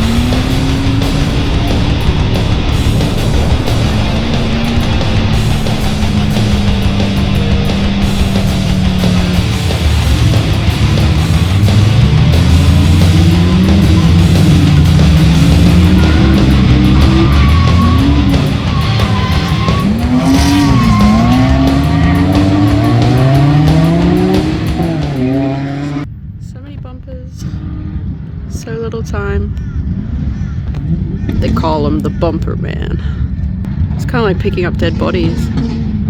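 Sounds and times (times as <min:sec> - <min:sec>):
tyres squealing: 0:00.0 - 0:25.3
rock music: 0:00.0 - 0:26.0
car engine revving: 0:00.0 - 0:26.1, 0:29.8 - 0:36.0.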